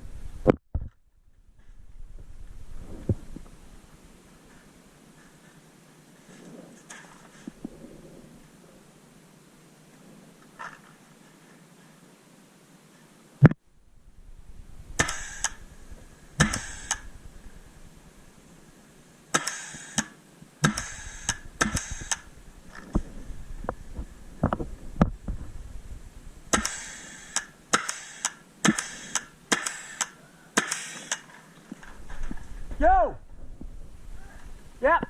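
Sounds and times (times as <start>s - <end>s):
paintball markers firing: 15.0s - 15.6s, 16.4s - 17.1s, 19.3s - 22.3s, 26.5s - 31.4s.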